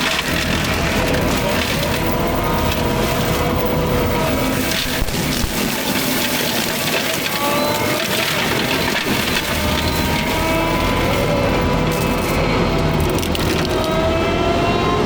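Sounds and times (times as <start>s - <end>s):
forestry mulcher chewing through brush: 0.0s - 14.1s.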